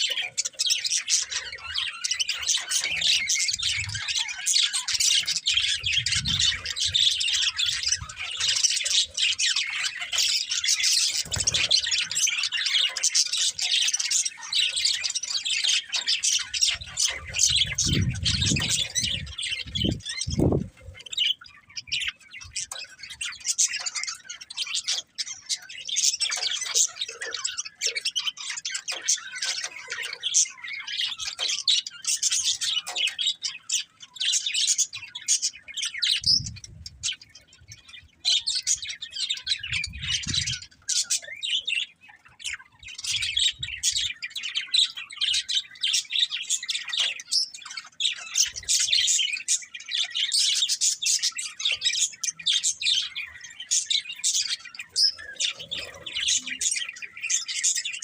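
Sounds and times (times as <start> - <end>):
budgerigars chirping: 0.0 - 58.0.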